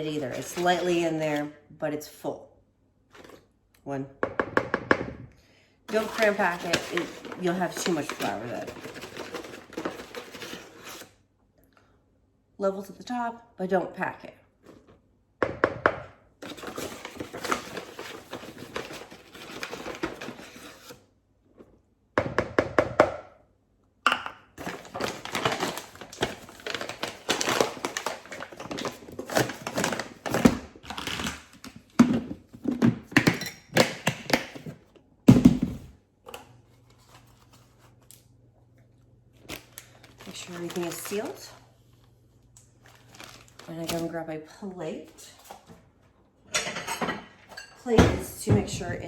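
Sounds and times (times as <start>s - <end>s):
paper bag crinkling: 5.9s - 11.1s, 16.4s - 20.9s, 24.6s - 31.6s, 39.3s - 41.6s, 42.8s - 44.2s.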